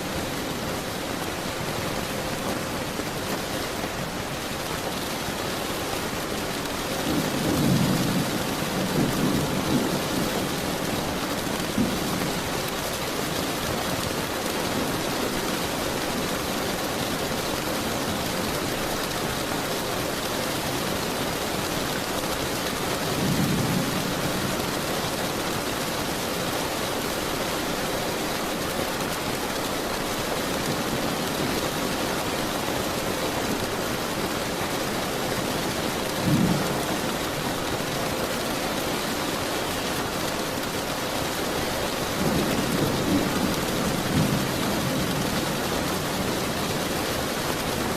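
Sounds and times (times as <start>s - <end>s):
steady rain: 0.0s - 47.9s
thunder rumbling: 0.1s - 12.9s.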